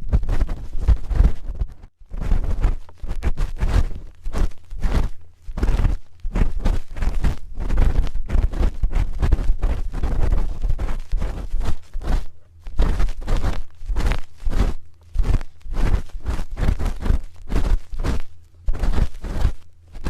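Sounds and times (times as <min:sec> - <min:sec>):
ear pick scraping on microphone: 0:00.0 - 0:20.0
microphone handling rumble: 0:00.0 - 0:20.0.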